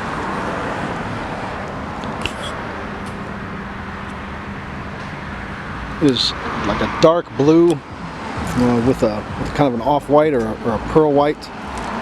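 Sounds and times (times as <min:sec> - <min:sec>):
faint engine hum: 0:00.0 - 0:12.0
road traffic rushing: 0:00.0 - 0:12.0.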